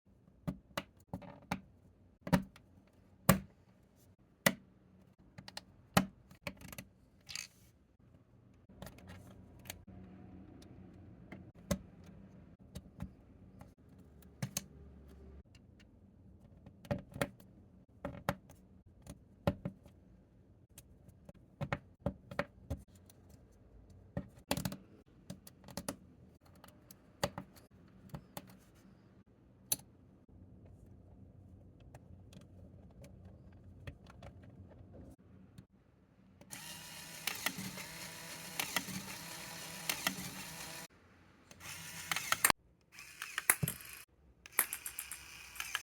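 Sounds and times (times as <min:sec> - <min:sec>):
plastic toy bricks clicking: 0:42.0 - 0:45.8.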